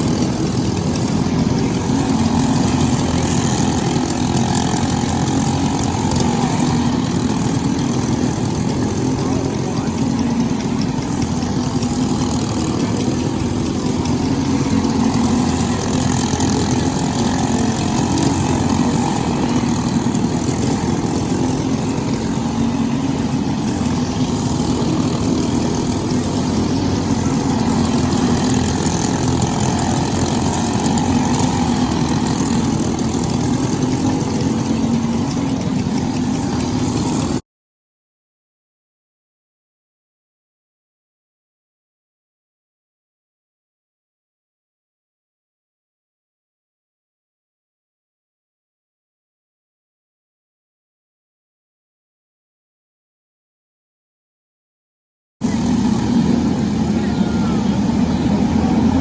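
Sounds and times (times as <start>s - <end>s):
kart engine droning: 0.0s - 37.4s, 55.4s - 59.0s.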